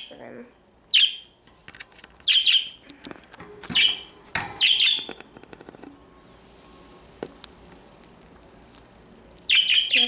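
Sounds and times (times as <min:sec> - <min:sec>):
budgerigar chirping: 0:00.9 - 0:01.3, 0:02.3 - 0:02.8, 0:03.8 - 0:05.1, 0:09.5 - 0:10.0.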